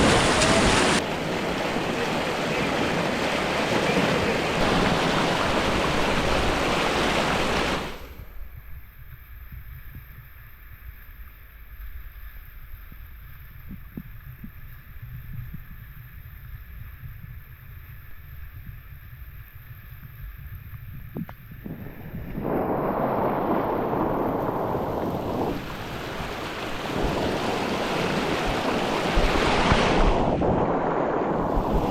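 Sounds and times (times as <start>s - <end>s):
river water rushing: 0.0s - 8.2s, 23.9s - 29.9s
wind buffeting microphone: 0.0s - 8.9s, 20.0s - 31.9s.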